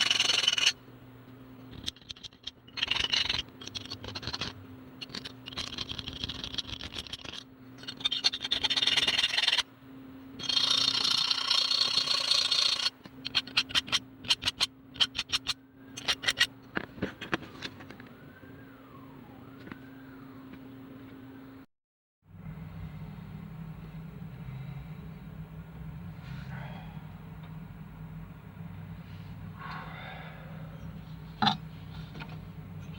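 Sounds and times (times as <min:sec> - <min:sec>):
steady low hum: 0:00.0 - 0:21.7, 0:22.3 - 0:32.9
scraping and rubbing: 0:01.7 - 0:09.6, 0:10.4 - 0:17.9.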